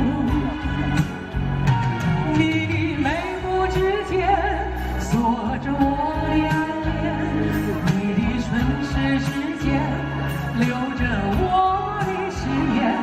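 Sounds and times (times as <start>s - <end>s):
live band playing: 0.0s - 13.0s
person singing: 0.0s - 13.0s
steady bass line: 0.0s - 13.0s.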